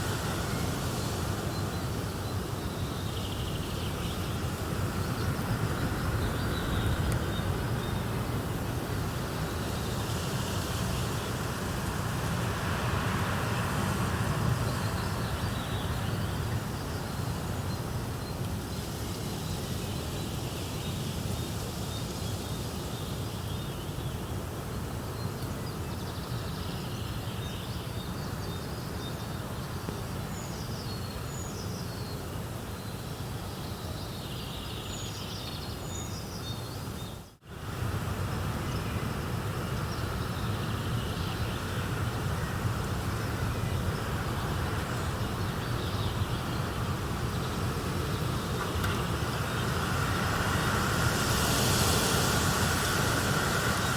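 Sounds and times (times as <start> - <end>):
steady rushing noise: 0.0 - 17.4, 41.8 - 53.9.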